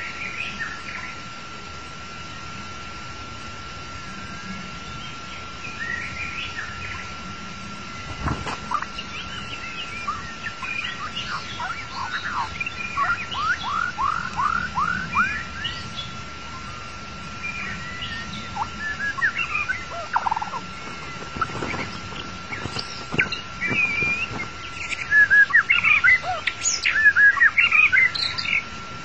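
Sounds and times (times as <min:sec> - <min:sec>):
bird singing whistled notes: 0:08.7 - 0:16.7, 0:17.4 - 0:28.7.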